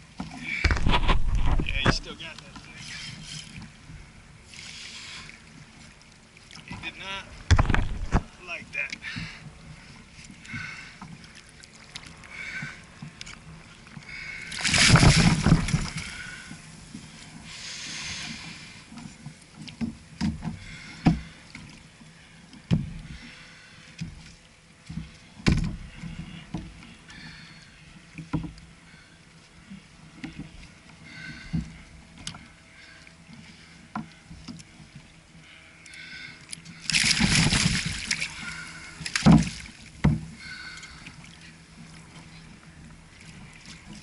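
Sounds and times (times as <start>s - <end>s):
water lapping against kayak hull: 0.0s - 44.0s
sharp knocks on hull: 0.6s - 2.0s, 7.4s - 8.3s, 14.7s - 16.0s, 19.8s - 21.3s, 22.7s - 23.0s, 24.9s - 25.9s, 39.0s - 40.3s
rush of water: 14.4s - 16.7s, 36.9s - 41.5s.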